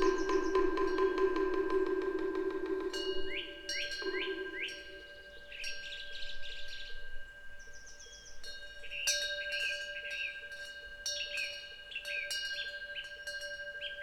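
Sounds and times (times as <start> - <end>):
warbling bird call: 0.0 - 5.8
songbirds chirping: 0.0 - 14.0
wind bell ringing: 0.0 - 14.0.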